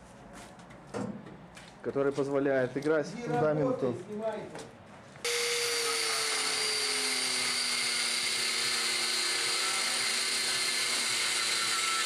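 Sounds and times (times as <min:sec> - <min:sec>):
power tool motor whining: 0:05.3 - 0:12.0.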